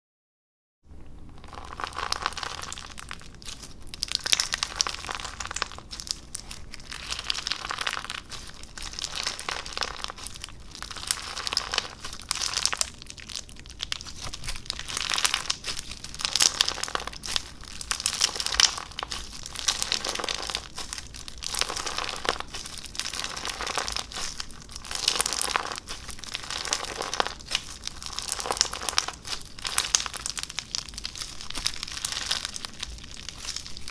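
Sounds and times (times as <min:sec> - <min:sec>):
slime crackling and popping: 0:01.1 - 0:33.9.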